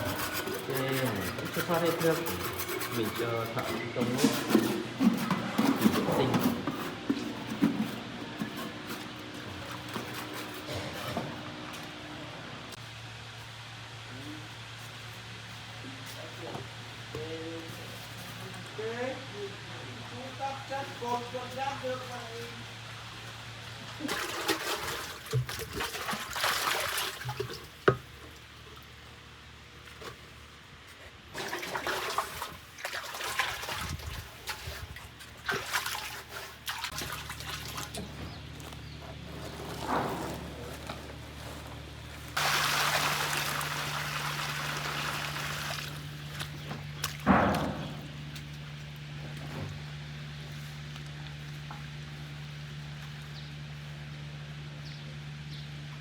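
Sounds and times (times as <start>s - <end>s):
water pouring and splashing: 24.0s - 28.5s, 31.3s - 38.2s, 42.3s - 47.8s.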